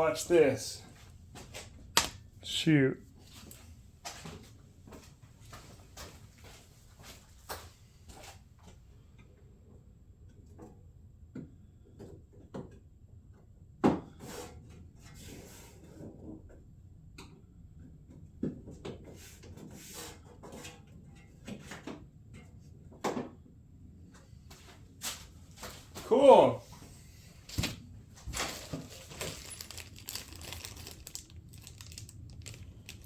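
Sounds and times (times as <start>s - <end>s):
plastic parts clicking and knocking: 28.4s - 33.0s.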